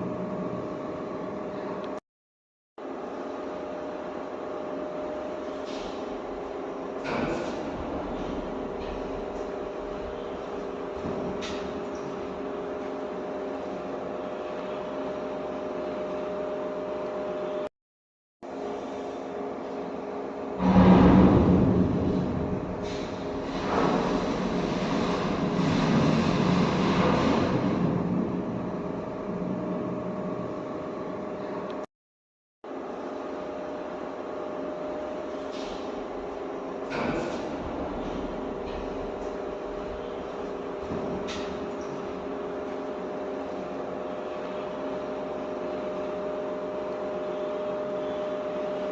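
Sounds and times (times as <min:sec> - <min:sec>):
machine hum: 0:00.0 - 0:02.0, 0:18.4 - 0:31.9
steady machine hum: 0:00.0 - 0:02.0, 0:02.8 - 0:17.7, 0:18.4 - 0:31.9, 0:32.6 - 0:48.9.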